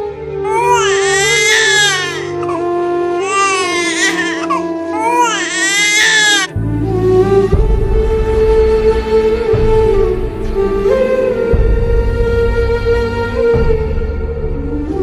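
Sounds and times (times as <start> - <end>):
sad background music: 0.0 - 15.0
long wailing cries: 0.4 - 6.6.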